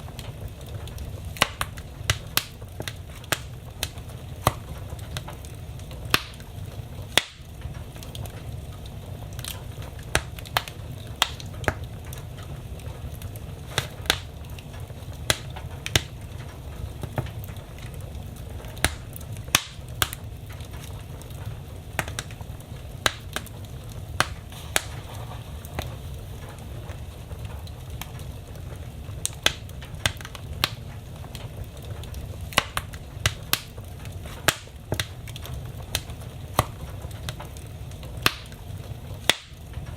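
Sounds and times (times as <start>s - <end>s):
fire crackling and popping: 0.0s - 39.9s
fire rumbling: 0.0s - 39.9s.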